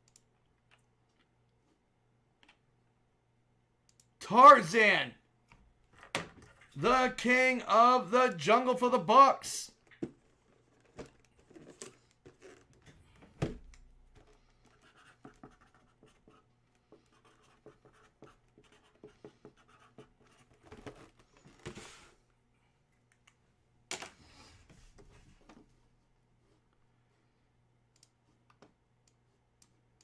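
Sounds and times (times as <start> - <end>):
handling scratches and clicks: 9.9 - 12.9.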